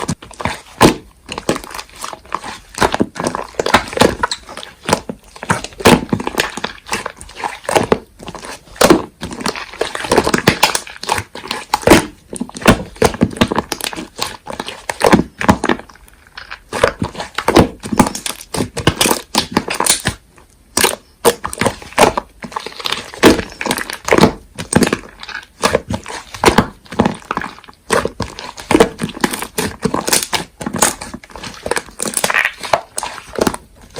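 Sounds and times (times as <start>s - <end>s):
slime squeezed by hand: 24.9s - 33.9s.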